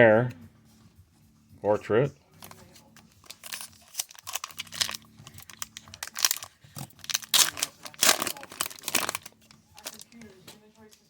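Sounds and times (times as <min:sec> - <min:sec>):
trading cards crinkling and swishing: 0:02.4 - 0:11.0.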